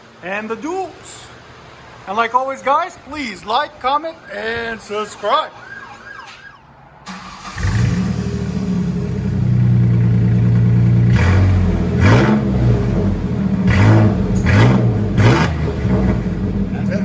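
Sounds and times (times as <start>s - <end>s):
truck engine starting and idling: 5.7s - 17.0s.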